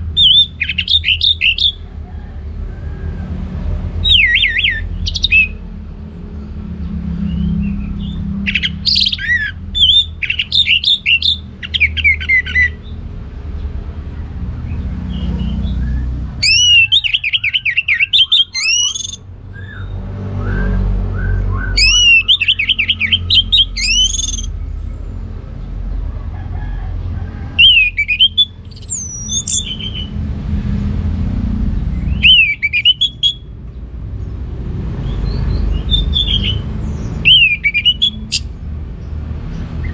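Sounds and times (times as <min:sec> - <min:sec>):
thrush singing whistled notes: 0:00.0 - 0:01.8, 0:04.0 - 0:05.6, 0:07.2 - 0:12.8, 0:15.1 - 0:24.7, 0:27.5 - 0:30.2, 0:31.9 - 0:33.6, 0:35.0 - 0:38.5.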